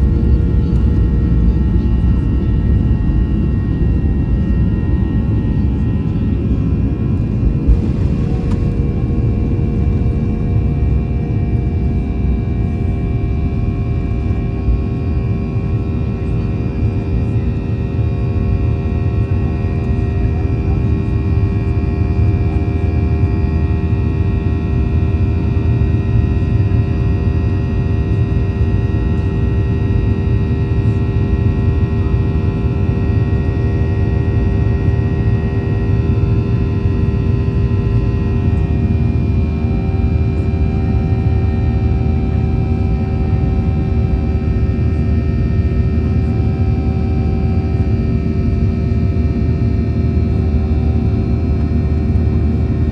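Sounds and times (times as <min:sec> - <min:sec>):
steady engine tones: 0:00.0 - 0:16.0
jet engines and airflow rumble: 0:00.0 - 0:52.9.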